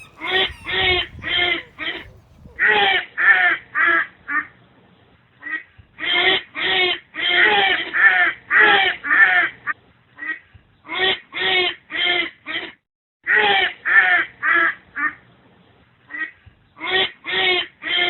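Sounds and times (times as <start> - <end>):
duck quacking: 0.0 - 2.6.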